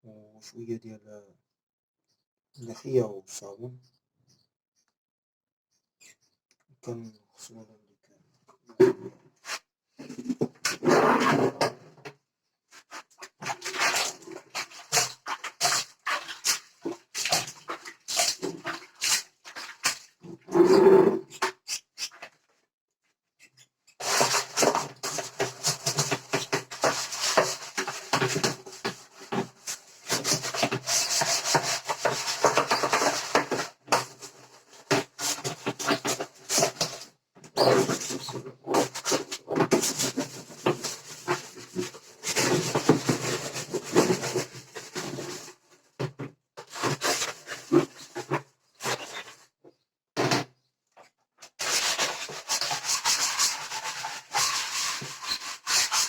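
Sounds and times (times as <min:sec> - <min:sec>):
scrubbing birdcage: 0:12.8 - 0:22.4, 0:24.0 - 0:45.5, 0:51.6 - 0:56.0.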